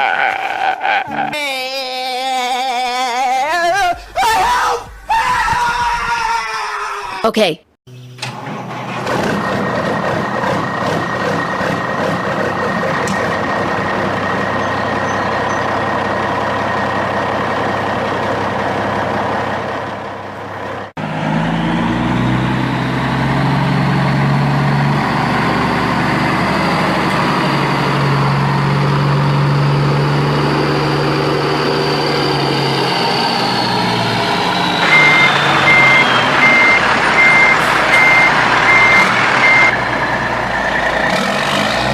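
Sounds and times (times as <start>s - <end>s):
pulsed reversing beeper: 21.3s - 41.1s.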